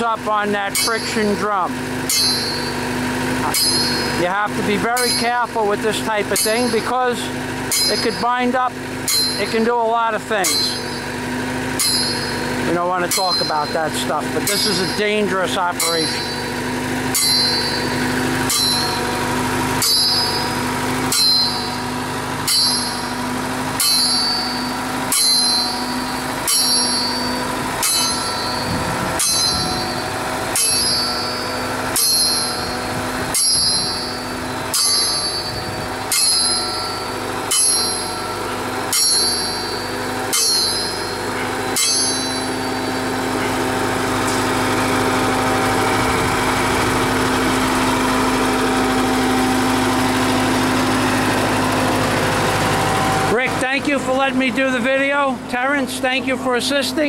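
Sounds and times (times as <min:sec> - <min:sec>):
diesel motor running: 0:00.0 - 0:57.0
drop hammer striking metal: 0:00.7 - 0:01.4, 0:02.0 - 0:02.8, 0:03.4 - 0:05.5, 0:06.2 - 0:07.0, 0:07.7 - 0:09.8, 0:10.4 - 0:11.2, 0:11.8 - 0:16.5, 0:17.1 - 0:19.2, 0:19.8 - 0:23.2, 0:23.8 - 0:43.6.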